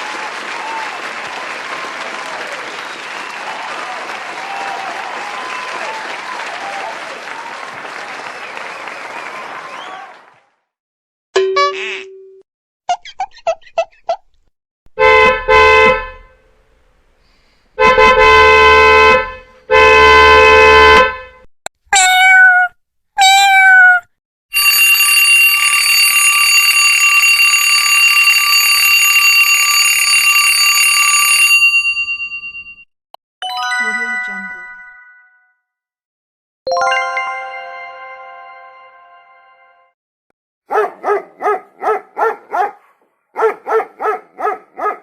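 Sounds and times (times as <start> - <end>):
long ringing tone: 24.6 - 32.8.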